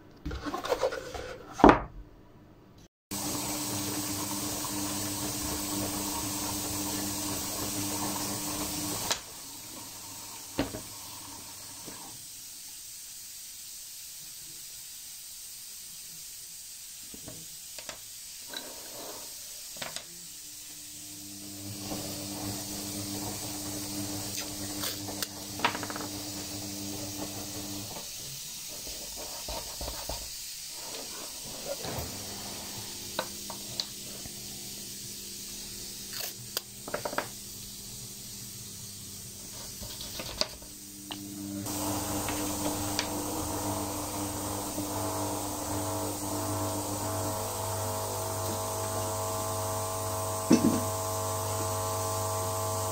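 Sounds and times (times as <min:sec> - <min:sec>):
small electric motor humming: 0:40.9 - 0:52.9.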